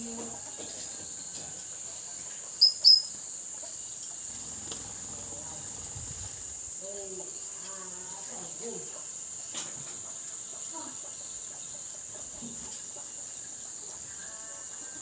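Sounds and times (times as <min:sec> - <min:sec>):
chicken clucking: 0:00.0 - 0:05.9, 0:06.9 - 0:15.0
crickets droning: 0:00.0 - 0:15.0
parrot high chirps: 0:02.6 - 0:03.2.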